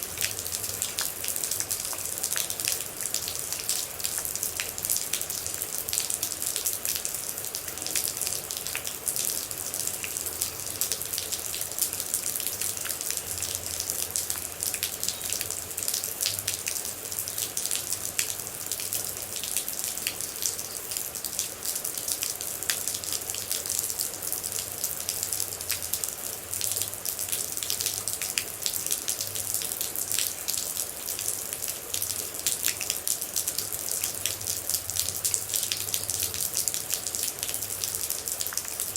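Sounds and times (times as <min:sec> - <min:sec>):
raindrops ticking: 0:00.0 - 0:23.8
steady rain hiss: 0:00.0 - 0:38.9.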